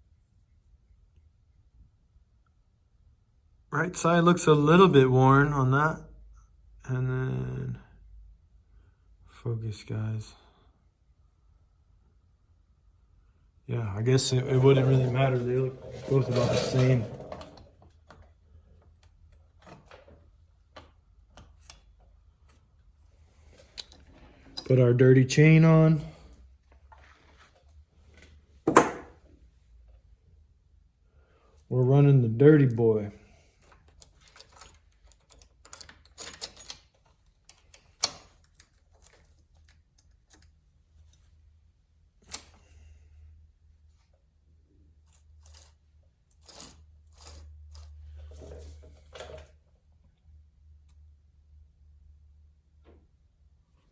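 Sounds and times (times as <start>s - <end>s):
faint clicks of handling parts: 14.5s - 24.8s, 32.6s - 51.2s.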